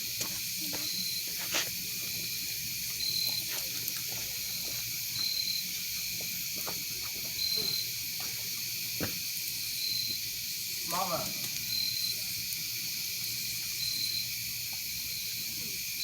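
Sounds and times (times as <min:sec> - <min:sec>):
campfire crackling: 0:00.0 - 0:16.0
steady high hiss: 0:00.0 - 0:16.0
insect high trill: 0:07.3 - 0:08.9, 0:09.6 - 0:16.0.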